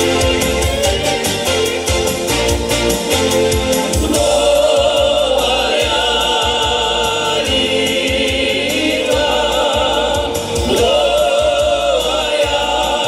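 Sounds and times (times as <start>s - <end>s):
band with steady drumbeat: 0.0s - 13.0s
people singing: 3.7s - 13.0s.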